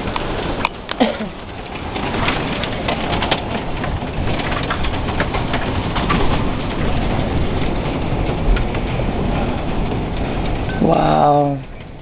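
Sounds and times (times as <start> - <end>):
hailstones clacking: 0.0 - 12.0
heavy rain rushing: 0.0 - 12.0.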